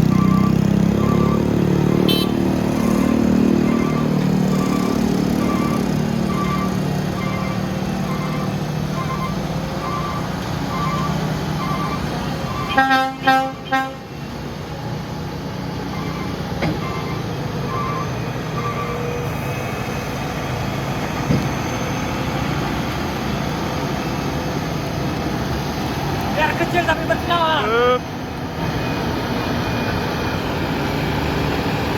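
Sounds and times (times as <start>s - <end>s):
heavy truck running: 0.0s - 31.9s
faint beep: 0.1s - 12.7s
vehicle horn toots: 1.9s - 3.1s, 12.6s - 14.2s.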